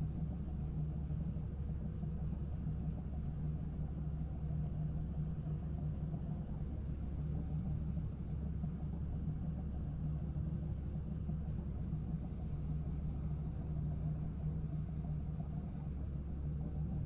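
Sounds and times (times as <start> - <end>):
engine droning steadily: 0.0 - 17.0.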